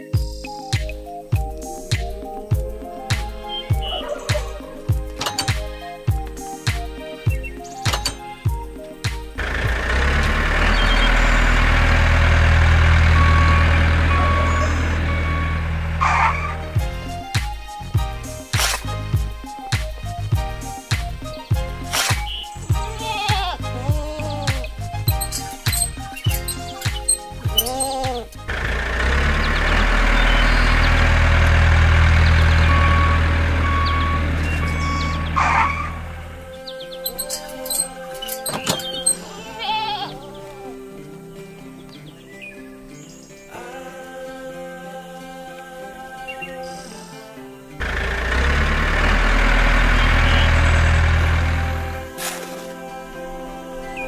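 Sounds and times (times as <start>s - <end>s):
tractor engine running: 2.5s - 39.2s, 47.8s - 52.7s
reversing alarm beeping: 9.4s - 16.7s, 28.7s - 36.4s, 47.8s - 51.9s.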